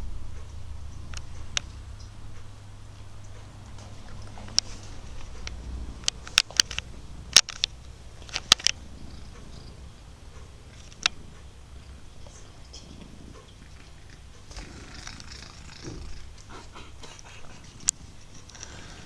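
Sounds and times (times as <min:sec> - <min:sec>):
sharp clicks and scratches: 0:03.2 - 0:09.7, 0:10.4 - 0:11.5
cat purring loudly: 0:08.0 - 0:19.0.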